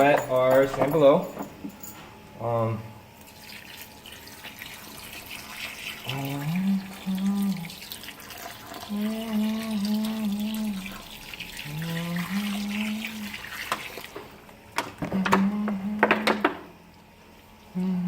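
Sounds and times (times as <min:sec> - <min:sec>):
water running and splashing: 0:03.3 - 0:14.4
person humming a tune: 0:06.0 - 0:07.8, 0:08.8 - 0:11.0, 0:11.6 - 0:13.4, 0:15.0 - 0:16.6, 0:17.7 - 0:18.0.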